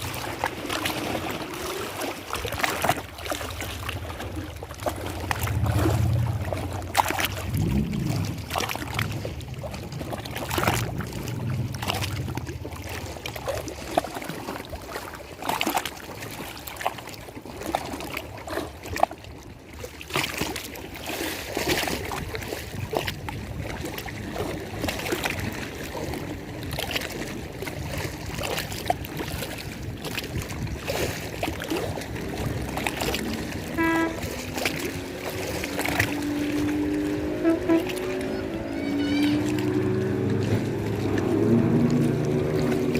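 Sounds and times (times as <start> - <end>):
water lapping against shore: 0.0 - 42.9
low hum: 4.4 - 12.8
short pitched tone: 33.7 - 34.4, 37.2 - 40.0.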